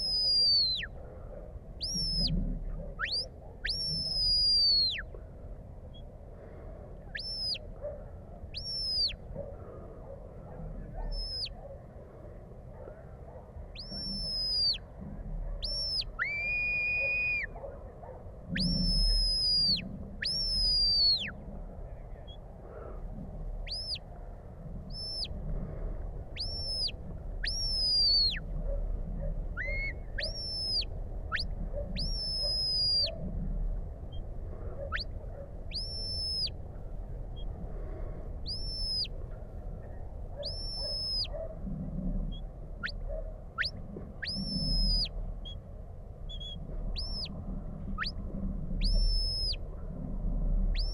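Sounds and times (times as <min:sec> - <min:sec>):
shepherd's whistle notes: 0:00.0 - 0:00.9, 0:03.0 - 0:05.0, 0:07.2 - 0:07.6, 0:08.6 - 0:09.2, 0:13.8 - 0:14.8, 0:15.6 - 0:17.5, 0:18.6 - 0:21.3, 0:26.4 - 0:28.4, 0:29.6 - 0:33.1, 0:35.7 - 0:36.5, 0:38.5 - 0:39.1, 0:40.4 - 0:41.3, 0:43.6 - 0:45.1, 0:48.8 - 0:49.6.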